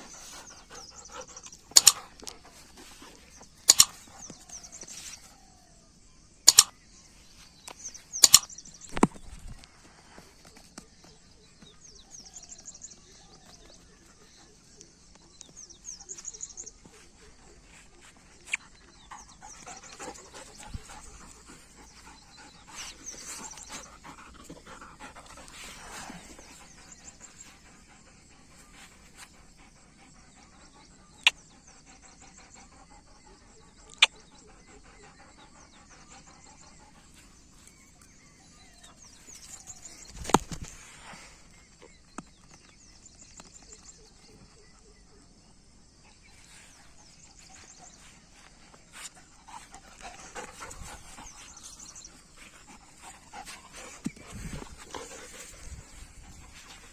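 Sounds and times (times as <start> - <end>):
dog panting: 0.0 - 3.3, 18.6 - 37.4, 46.3 - 56.9.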